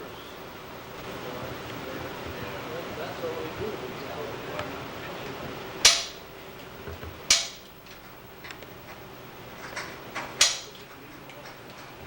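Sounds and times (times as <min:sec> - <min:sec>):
sharp ringing knocks: 0:05.8 - 0:06.3, 0:07.3 - 0:08.2.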